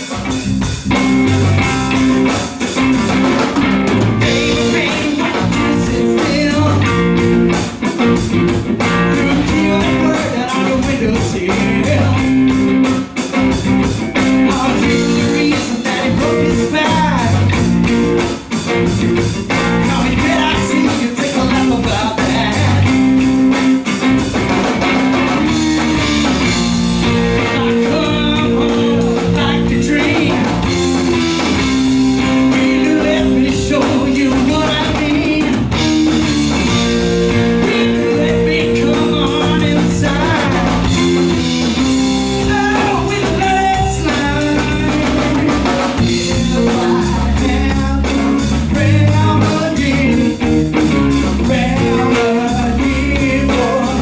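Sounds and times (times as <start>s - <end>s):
blues rock band playing: 0.0s - 54.0s
person singing: 4.2s - 7.4s, 8.8s - 12.6s, 14.2s - 17.8s, 19.5s - 23.2s, 27.1s - 54.0s.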